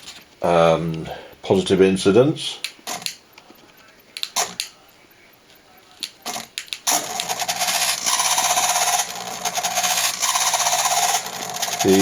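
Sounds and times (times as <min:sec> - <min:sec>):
clicks: 0:02.6 - 0:04.9, 0:05.5 - 0:07.4
servo buzzing: 0:06.3 - 0:12.0.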